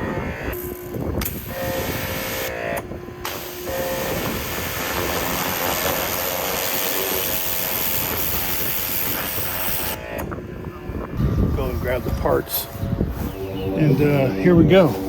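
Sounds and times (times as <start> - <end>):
pressure washer spraying water: 3.2 - 10.0.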